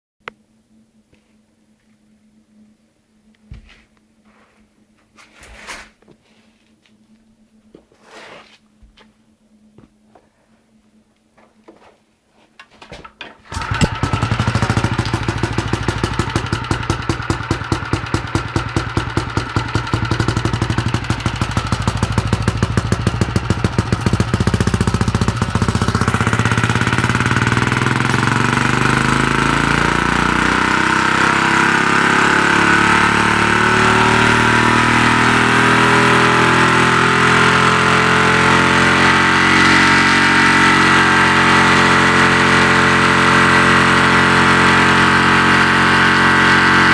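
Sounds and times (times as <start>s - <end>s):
engine starting and running: 13.2s - 46.9s.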